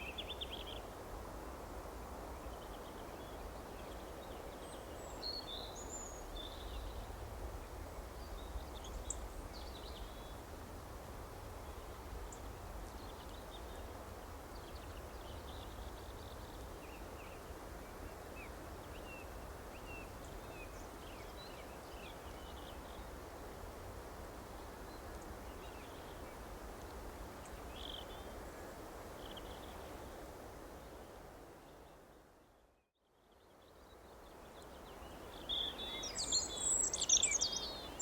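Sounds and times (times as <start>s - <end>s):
small songbirds chirping: 2.4s - 7.1s, 8.2s - 10.4s, 24.2s - 30.0s, 33.2s - 38.0s.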